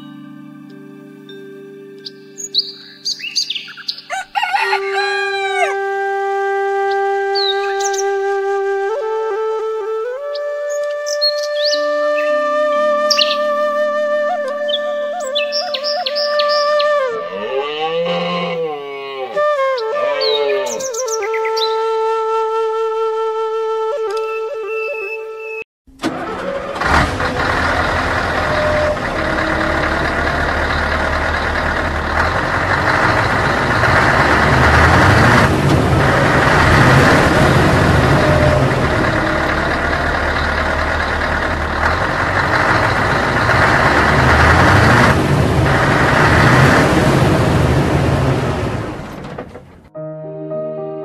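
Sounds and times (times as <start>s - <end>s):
heavy vehicle engine revving: 26.1s - 49.9s.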